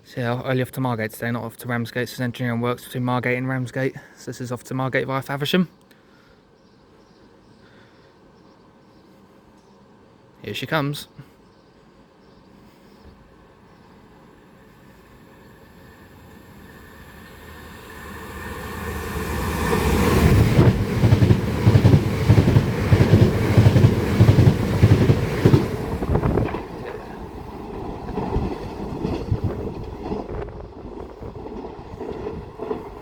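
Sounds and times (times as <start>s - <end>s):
electric trains passing at speed: 13.9s - 33.0s
wheels beating on track: 16.3s - 33.0s.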